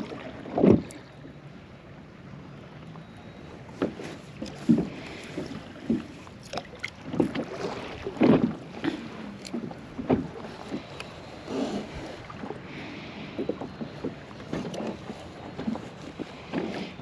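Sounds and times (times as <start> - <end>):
water slapping against kayak hull: 0.0 - 1.1, 3.7 - 17.0.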